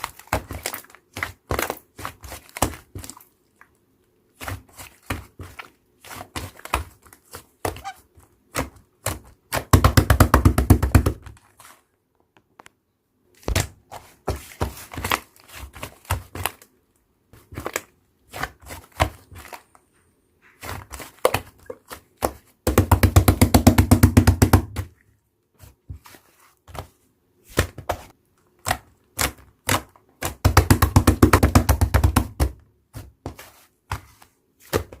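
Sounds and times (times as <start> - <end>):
rapid crackling pops of slime: 26.7 - 35.0.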